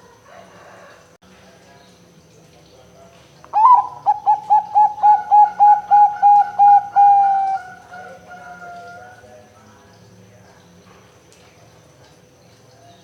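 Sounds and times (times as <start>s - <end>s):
dove cooing: 3.6s - 9.2s.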